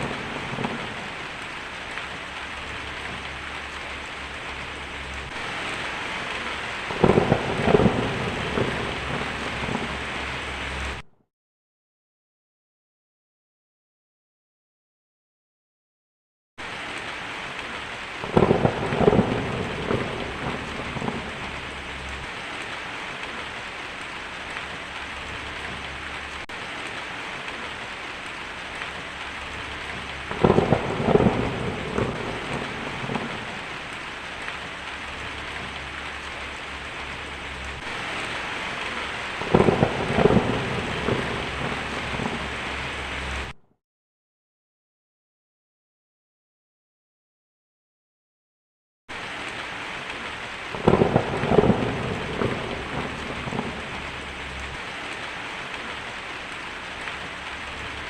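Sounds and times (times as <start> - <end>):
heavy rain hissing: 0.0 - 11.0, 16.6 - 43.6, 49.1 - 58.0
thunder cracking and rumbling: 0.0 - 11.0, 16.6 - 43.6, 50.0 - 56.2.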